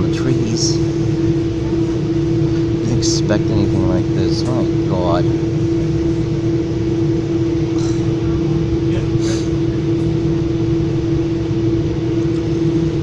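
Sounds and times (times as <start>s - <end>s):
train interior rumble and hum: 0.0s - 13.0s.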